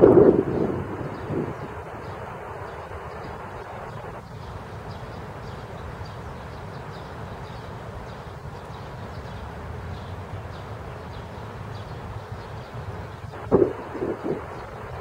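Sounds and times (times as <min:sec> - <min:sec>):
steady rain hiss: 0:00.0 - 0:15.0
low rumble: 0:13.4 - 0:14.6.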